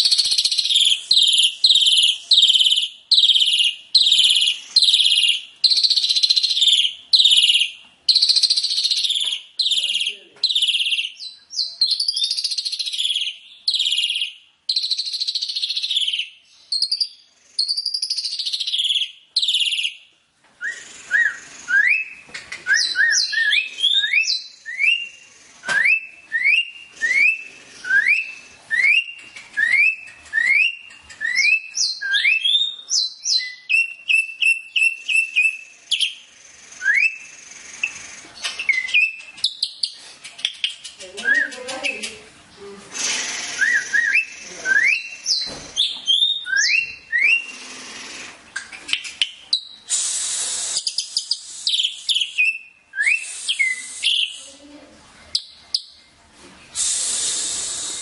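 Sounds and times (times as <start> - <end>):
bird chattering: 0.0 - 20.0, 30.6 - 42.3, 42.9 - 54.7
bird whistling phrases: 0.0 - 20.0, 20.6 - 36.2, 36.8 - 38.0, 40.6 - 42.3, 43.0 - 47.7, 49.0 - 54.6.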